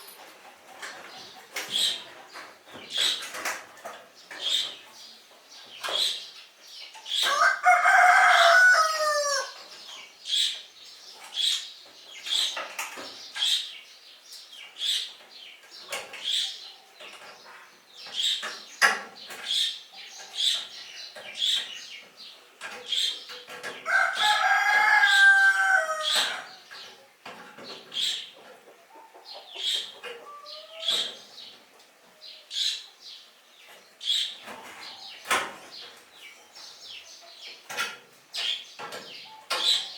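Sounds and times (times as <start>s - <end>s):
rooster crowing: 7.3s - 9.6s, 23.9s - 26.5s.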